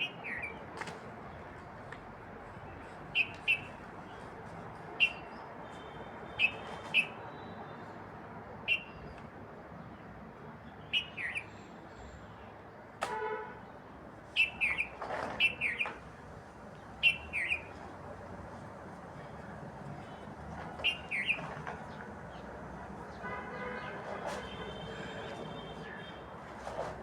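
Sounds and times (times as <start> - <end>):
birds chirping: 10.8 - 11.5, 16.8 - 17.8, 20.8 - 22.6.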